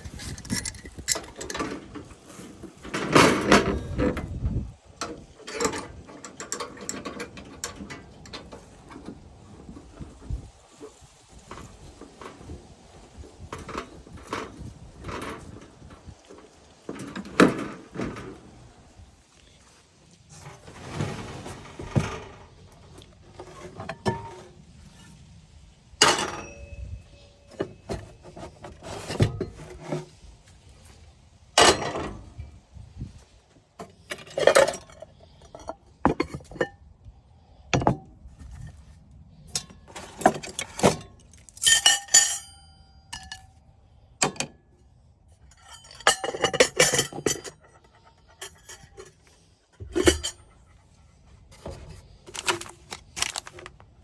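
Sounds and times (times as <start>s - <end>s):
cookware clinking and clanking: 41.6s - 43.4s, 45.6s - 49.1s, 49.8s - 50.4s.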